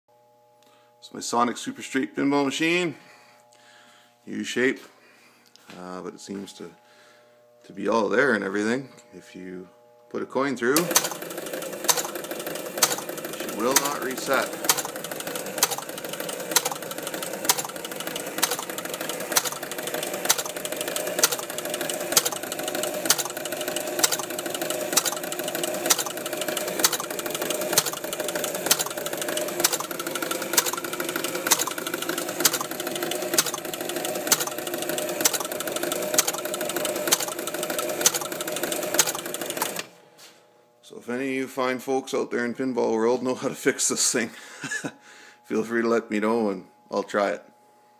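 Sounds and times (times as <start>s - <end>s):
pinball machine mechanical running: 10.6s - 40.0s
sharp mechanical click: 10.8s - 39.9s.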